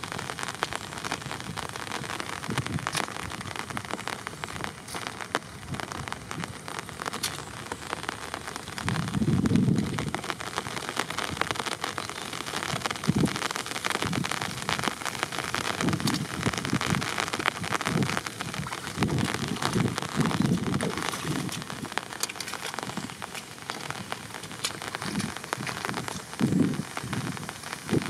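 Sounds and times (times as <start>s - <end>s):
steady rain: 0.0s - 28.0s
water and mud sloshing: 15.6s - 28.0s.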